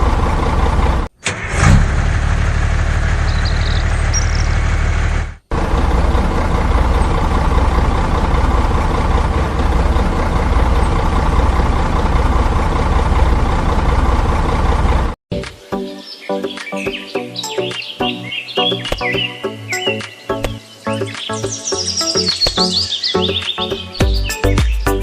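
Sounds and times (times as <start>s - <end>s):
engine running: 0.0s - 15.2s.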